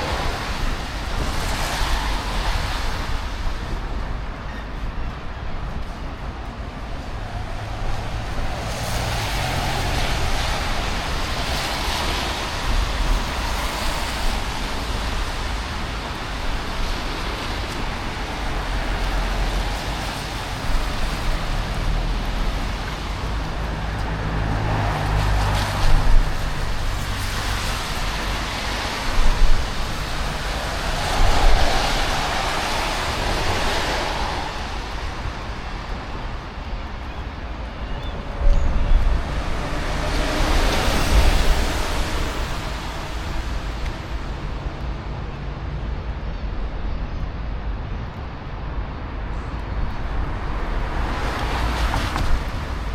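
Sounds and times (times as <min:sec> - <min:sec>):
vehicles hissing on wet road: 0:00.0 - 0:46.6, 0:48.9 - 0:52.9
low traffic rumble: 0:00.0 - 0:52.9.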